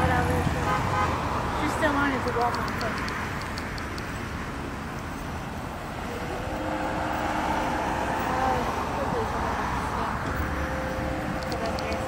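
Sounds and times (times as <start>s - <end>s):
passenger train running on track: 1.4s - 12.0s
faint rapid ticking: 2.1s - 4.2s
distant train horn chord: 6.1s - 8.7s, 10.3s - 12.0s.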